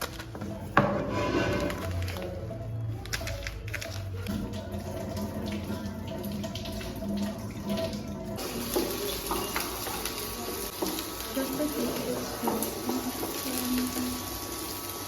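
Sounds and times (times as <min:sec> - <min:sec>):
soft background music: 0:00.0 - 0:14.4
water running into sink: 0:04.3 - 0:15.0.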